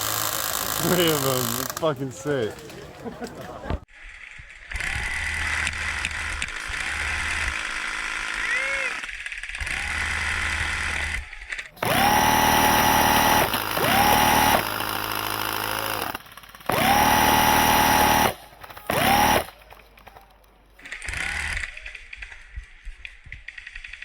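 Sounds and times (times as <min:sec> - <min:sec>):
motor whining: 0:00.0 - 0:01.9, 0:04.3 - 0:20.2, 0:20.8 - 0:21.8
rapid rattle of shots: 0:00.0 - 0:02.0, 0:10.3 - 0:20.2.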